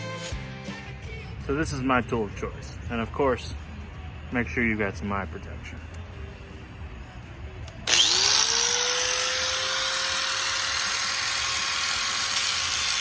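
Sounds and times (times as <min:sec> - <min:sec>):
electric grinder whining: 0:07.8 - 0:13.0
grinder cutting through steel: 0:07.8 - 0:13.0.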